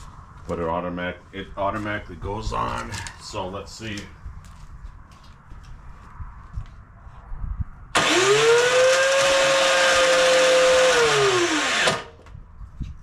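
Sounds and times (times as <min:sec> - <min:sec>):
electric starter whining: 0:07.9 - 0:12.3.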